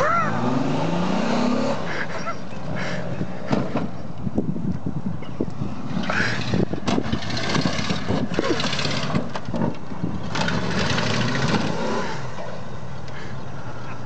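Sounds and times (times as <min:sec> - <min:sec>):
vehicle engines running hard: 0:00.0 - 0:14.0
knocks from vehicle bodies: 0:03.5 - 0:04.0.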